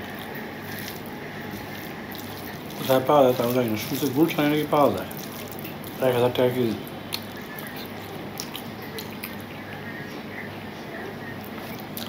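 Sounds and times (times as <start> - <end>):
person chewing: 0.0 - 9.8, 11.4 - 12.0
steady low hum: 0.0 - 12.0
wet mouth clicks and smacks: 7.1 - 9.5.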